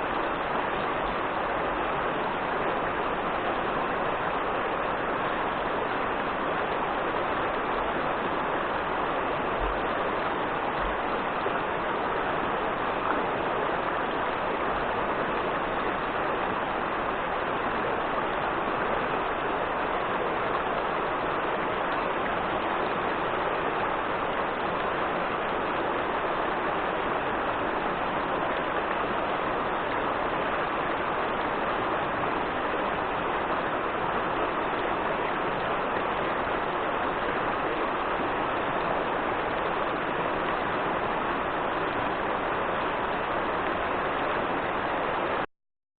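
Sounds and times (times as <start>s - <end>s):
river water rushing over rapids: 0.0s - 45.5s.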